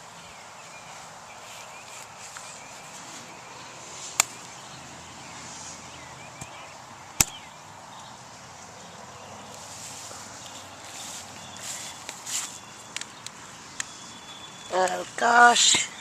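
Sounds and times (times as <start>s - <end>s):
faint high chirps: 11.4s - 16.0s.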